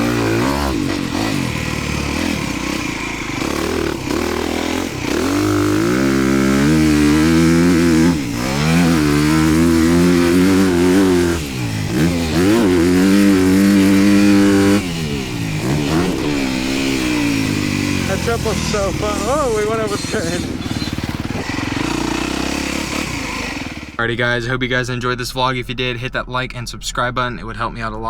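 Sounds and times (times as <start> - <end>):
motocross bike engine revving: 0.0 - 24.4.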